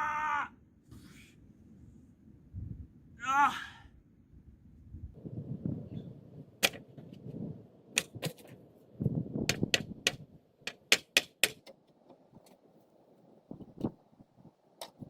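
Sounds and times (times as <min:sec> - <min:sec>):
sharp clicks and knocks: 0:06.6 - 0:07.2, 0:08.0 - 0:08.5, 0:09.5 - 0:12.8, 0:14.8 - 0:15.0.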